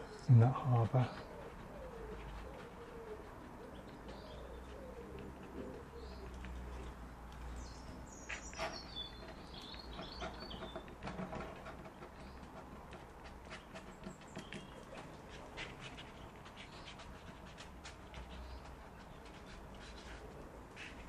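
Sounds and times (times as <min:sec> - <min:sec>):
pigeon cooing: 0:00.0 - 0:07.1
small bird chirping: 0:00.0 - 0:12.6.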